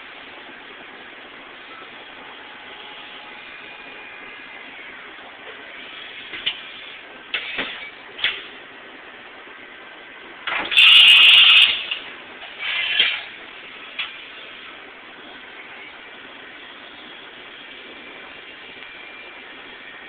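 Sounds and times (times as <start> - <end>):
loud air hiss: 10.6 - 19.9.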